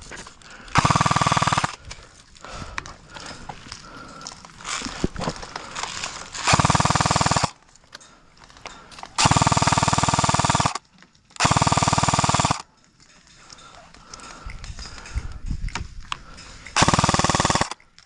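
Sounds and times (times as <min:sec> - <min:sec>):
airsoft gun full-auto bursts: 0:00.7 - 0:01.8, 0:06.3 - 0:07.6, 0:09.2 - 0:10.8, 0:11.4 - 0:12.7, 0:16.8 - 0:17.8.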